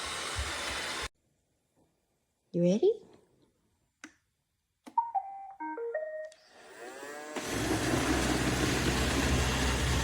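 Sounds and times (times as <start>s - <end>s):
vacuum suction and brushes: 0.0s - 1.1s, 6.5s - 10.0s
click: 4.0s - 4.2s.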